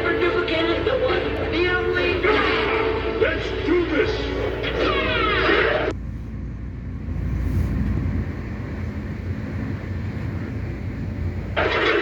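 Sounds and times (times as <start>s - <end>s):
music: 0.0s - 5.9s
train rumble and wheel hiss: 0.0s - 12.0s.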